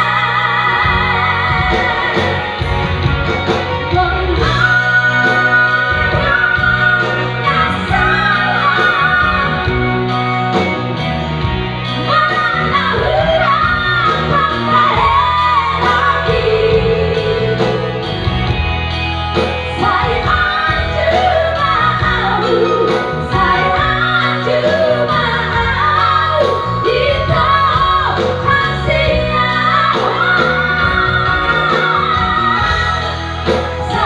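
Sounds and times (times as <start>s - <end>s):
woman singing with vibrato: 0.0s - 2.8s, 3.5s - 10.1s, 12.0s - 18.3s, 19.4s - 34.0s
pop band with bass and drums: 0.0s - 34.0s.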